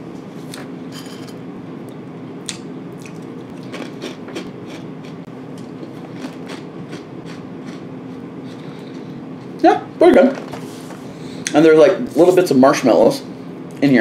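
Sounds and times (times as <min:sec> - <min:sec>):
steady low hum: 0:00.0 - 0:14.0
chewing crunchy cereal: 0:03.0 - 0:09.6.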